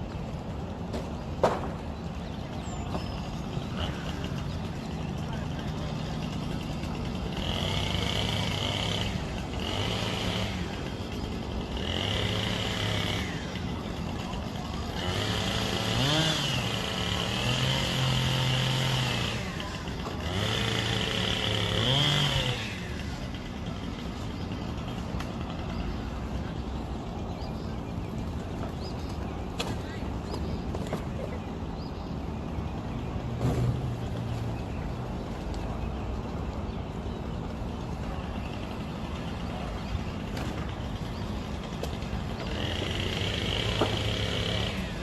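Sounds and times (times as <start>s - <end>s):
motor engine revving: 3.2s - 29.2s, 37.9s - 45.0s.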